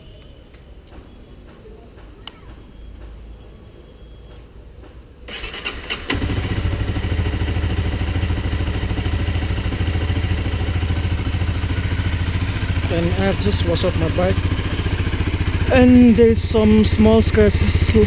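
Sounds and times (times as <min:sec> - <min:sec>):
motorcycle engine starting and idling: 0:05.3 - 0:18.0.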